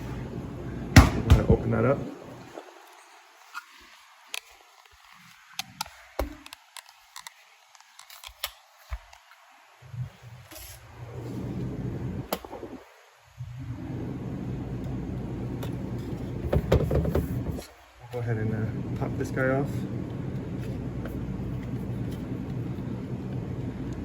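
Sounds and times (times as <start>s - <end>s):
steady low hum: 0.0s - 2.8s, 9.8s - 24.0s
packaging clicks and crinkles: 2.8s - 9.3s.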